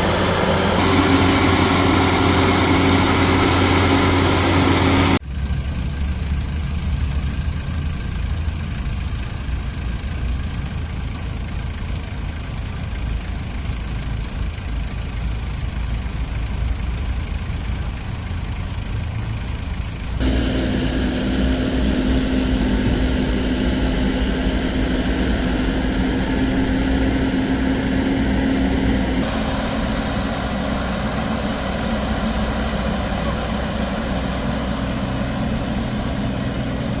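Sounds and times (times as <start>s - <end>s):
harvester engine whining: 0.0s - 10.6s, 18.5s - 37.0s.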